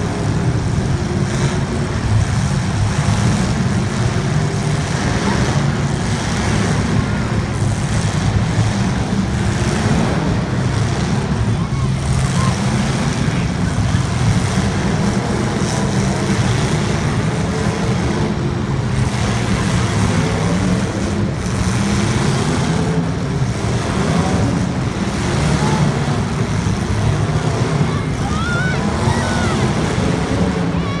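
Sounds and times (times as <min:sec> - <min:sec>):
race car engines revving: 0:00.0 - 0:31.0.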